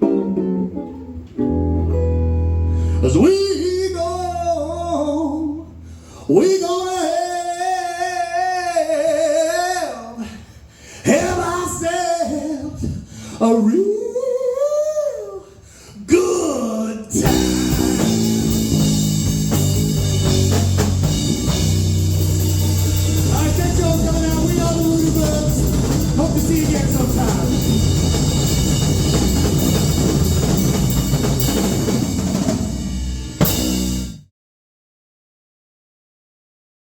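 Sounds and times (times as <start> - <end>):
blues-rock band playing: 0.0 - 3.0, 17.2 - 34.2.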